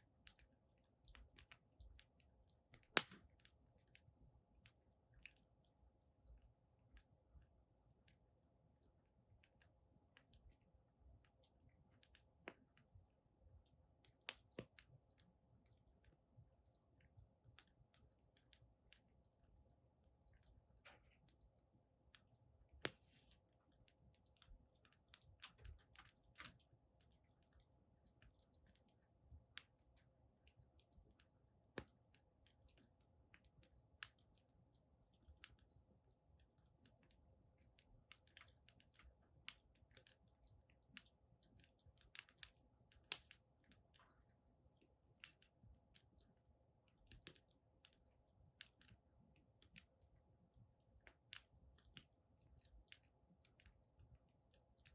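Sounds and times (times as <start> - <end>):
wood fire crackling and popping: 0.1 - 5.7, 9.1 - 19.6, 20.2 - 44.2, 44.8 - 48.0.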